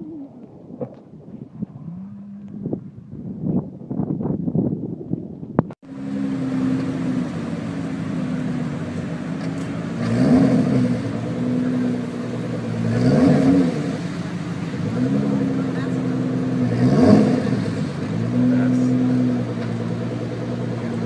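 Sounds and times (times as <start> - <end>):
car engine revving: 5.8 - 21.0.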